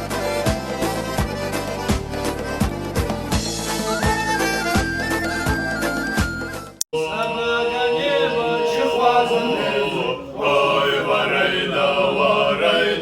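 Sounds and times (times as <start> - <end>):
men singing a cappella in harmony: 7.0 - 13.0.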